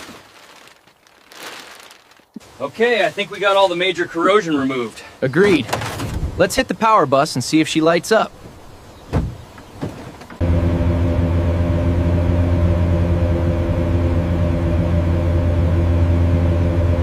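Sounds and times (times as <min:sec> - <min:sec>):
deep machine hum: 0:10.4 - 0:17.0.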